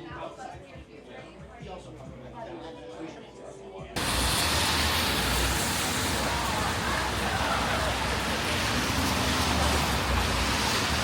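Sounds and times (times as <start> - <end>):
faint voices: 0.0 - 11.0
heavy rain: 4.0 - 11.0
wet road traffic: 4.0 - 11.0.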